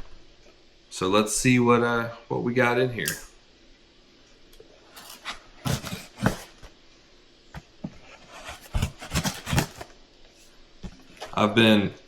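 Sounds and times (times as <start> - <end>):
box rustling and knocking: 5.0 - 6.7, 7.6 - 9.9.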